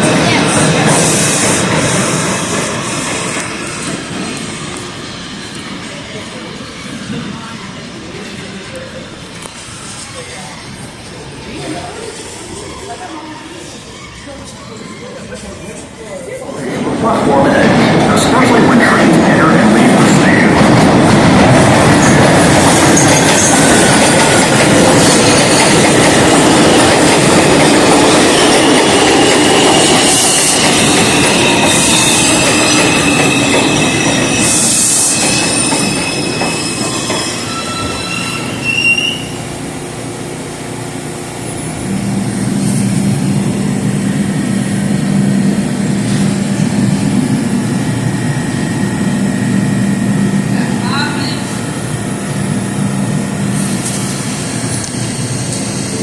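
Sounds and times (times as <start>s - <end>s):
subway train wheels rumbling: 0.0s - 56.0s
high-pitched wheel squeal: 29.6s - 39.4s.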